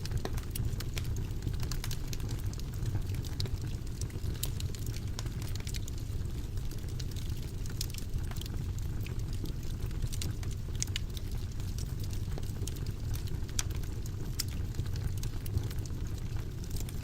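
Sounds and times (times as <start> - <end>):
fire flames rumbling: 0.0 - 17.0
wood fire crackling and popping: 0.0 - 17.0.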